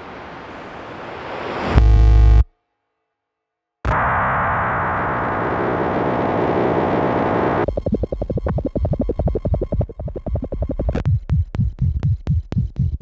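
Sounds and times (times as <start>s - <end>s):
electronic noise wash: 0.1s - 2.4s, 3.9s - 11.0s
fast pulsing rattle: 7.6s - 11.1s
low synth thumps with clicks: 7.6s - 13.0s.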